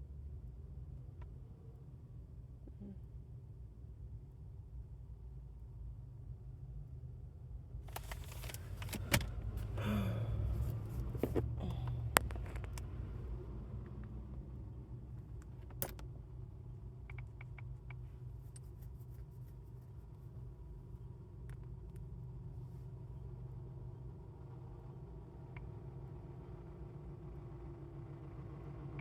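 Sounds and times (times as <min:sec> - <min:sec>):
low steady rumble: 0:00.0 - 0:29.0
rustling inside a car: 0:07.8 - 0:16.4, 0:17.2 - 0:23.1.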